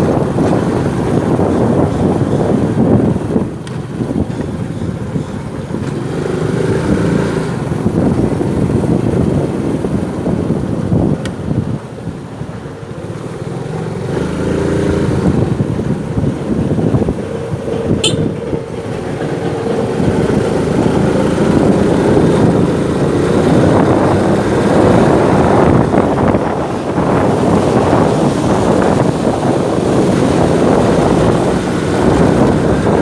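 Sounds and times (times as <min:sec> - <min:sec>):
motorcycle engine running: 0:00.0 - 0:33.0
road and wind noise: 0:00.0 - 0:33.0.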